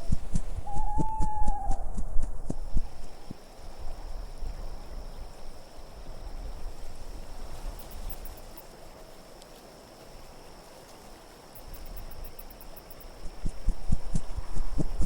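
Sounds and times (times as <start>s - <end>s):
wind rumbling: 0.0s - 8.4s, 11.8s - 15.0s.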